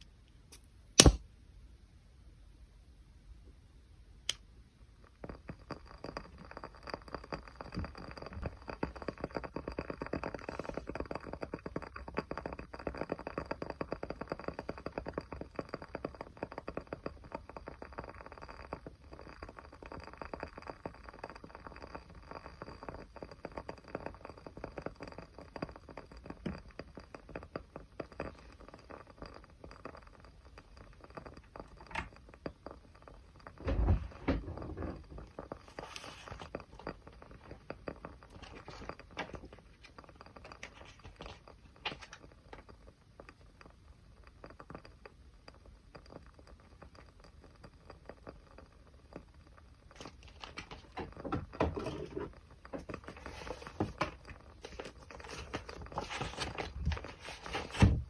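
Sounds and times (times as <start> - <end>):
sharp click: 0.5 - 1.2
fire crackling and popping: 1.0 - 1.2, 5.0 - 51.6.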